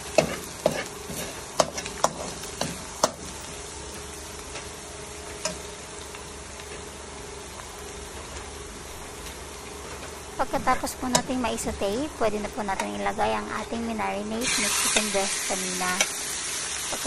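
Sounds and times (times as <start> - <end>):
vegetables sizzling in oil: 0.0 - 17.0
metal spatula scraping a pan: 0.1 - 2.8.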